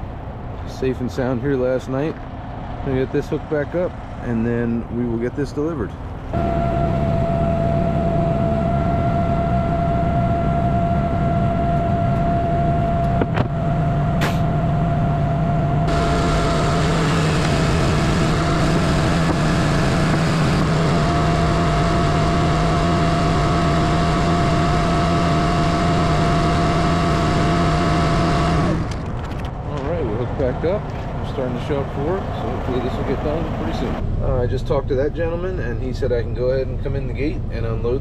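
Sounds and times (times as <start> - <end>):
diesel truck engine idling: 29.7 - 34.5.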